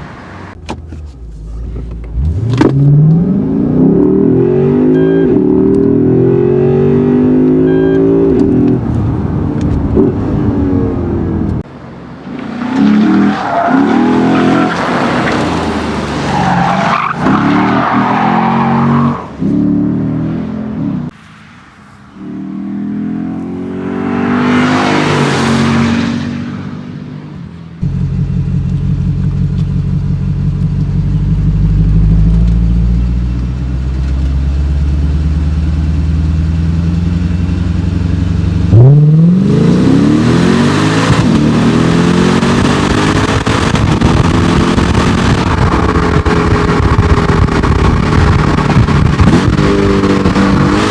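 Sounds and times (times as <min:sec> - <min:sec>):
car engine revving: 0:00.0 - 0:21.2, 0:21.9 - 0:50.9
tyres squealing: 0:11.8 - 0:19.4.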